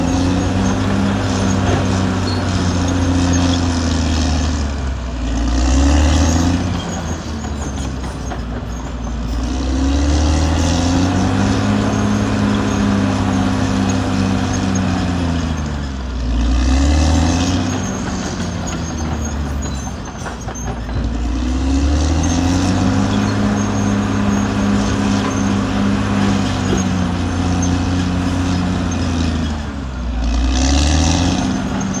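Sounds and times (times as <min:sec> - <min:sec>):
bulldozer diesel engine running: 0:00.0 - 0:32.0.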